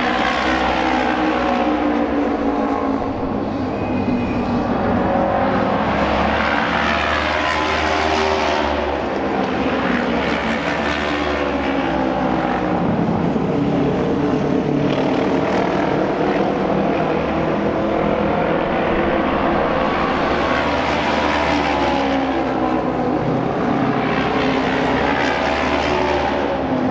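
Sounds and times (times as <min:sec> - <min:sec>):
racing motorcycle engines passing: 0:00.0 - 0:26.9.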